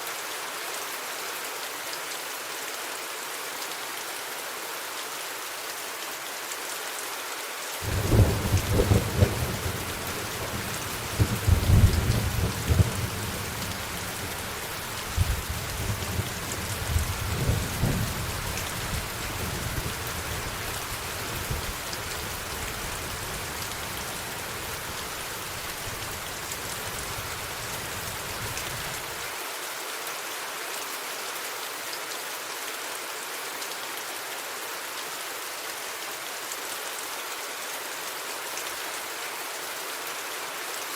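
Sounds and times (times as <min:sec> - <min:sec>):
steady rain hissing: 0:00.0 - 0:40.9
thunder cracking and rumbling: 0:07.8 - 0:28.9.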